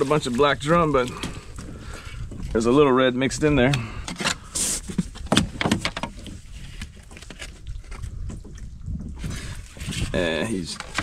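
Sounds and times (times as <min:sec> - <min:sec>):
knocks and clicks on plastic kayak: 0:05.0 - 0:06.3.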